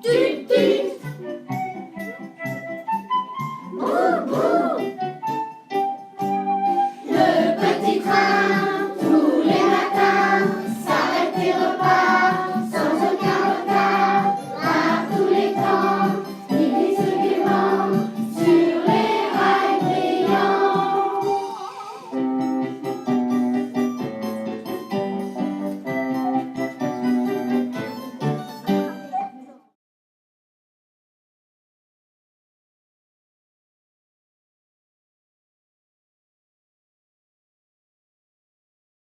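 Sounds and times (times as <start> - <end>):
group singing children's song: 0.0 - 1.2, 3.7 - 5.0, 7.0 - 21.7
instrumental accompaniment: 0.0 - 29.6.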